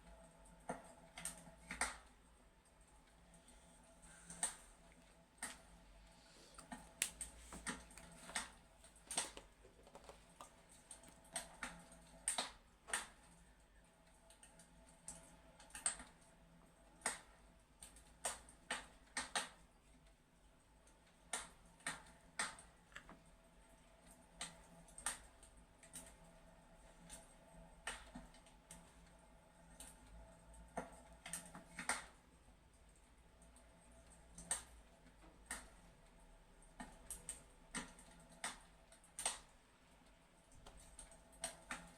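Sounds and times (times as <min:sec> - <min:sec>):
faint steady hum: 0:00.0 - 0:41.9
fireplace crackling: 0:01.8 - 0:13.3.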